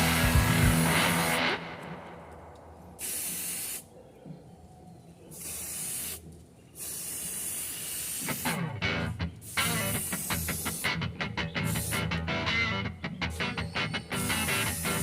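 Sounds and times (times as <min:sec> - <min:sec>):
music playing: 0:00.0 - 0:02.2, 0:10.9 - 0:15.0
aerosol spray can hissing: 0:00.2 - 0:01.5, 0:03.0 - 0:03.8, 0:05.3 - 0:06.2, 0:06.8 - 0:08.6, 0:09.4 - 0:11.0, 0:11.6 - 0:12.2, 0:14.1 - 0:15.0.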